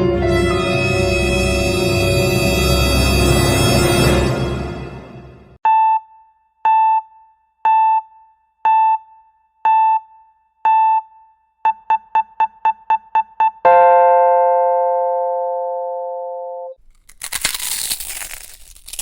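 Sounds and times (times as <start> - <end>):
electronic countdown beeps: 5.6 - 14.6.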